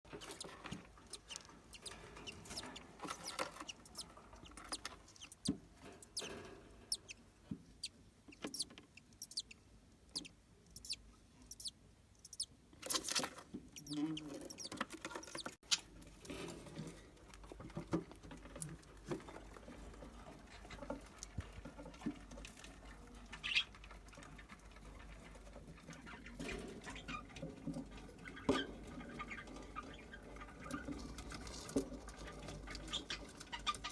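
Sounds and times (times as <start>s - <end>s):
bird chicks chirping: 0.1s - 7.2s, 7.8s - 15.6s
scratching: 0.1s - 7.2s, 7.8s - 16.8s.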